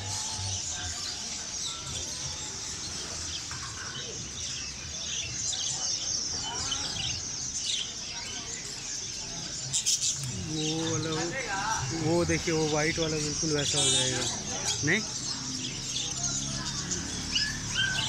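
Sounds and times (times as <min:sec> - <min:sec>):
caged birds chirping: 0:00.0 - 0:18.0
sharp loud bird calls: 0:09.0 - 0:18.0.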